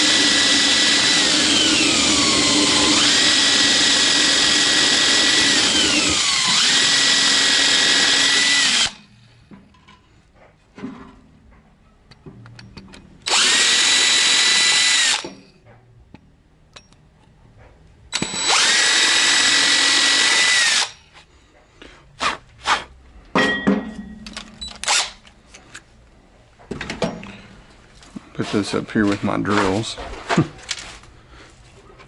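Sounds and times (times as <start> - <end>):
electric drill whining: 0.0 - 9.2, 13.2 - 15.5, 18.1 - 21.1, 24.6 - 25.2
tool handling clicks and knocks: 9.4 - 13.3, 15.2 - 18.3, 23.3 - 25.9, 26.5 - 28.2.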